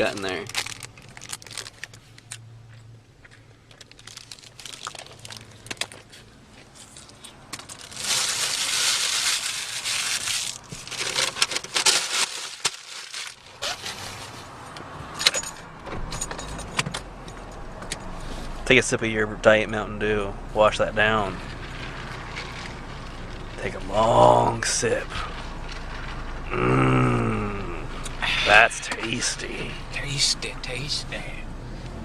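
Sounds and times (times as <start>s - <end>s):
paper wrapper rustling and crinkling: 0.0s - 2.4s, 3.7s - 14.5s.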